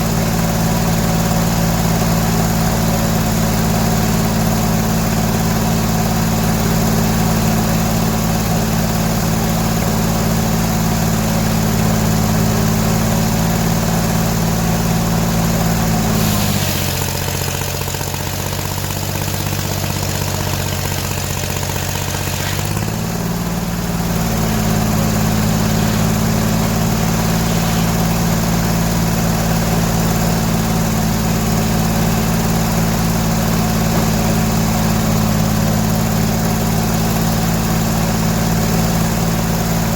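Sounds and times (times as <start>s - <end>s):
gas engine running: 0.0s - 39.9s
saw blade cutting log hiss: 16.0s - 17.4s, 25.0s - 28.6s.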